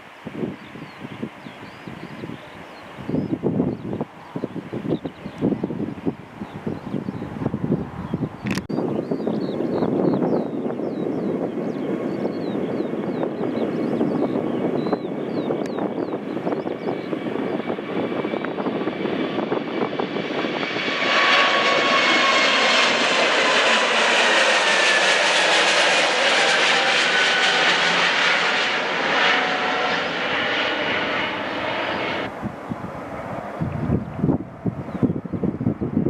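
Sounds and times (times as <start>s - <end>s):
jet engines rumbling: 0.0s - 36.0s
jet roar passing: 11.3s - 36.0s.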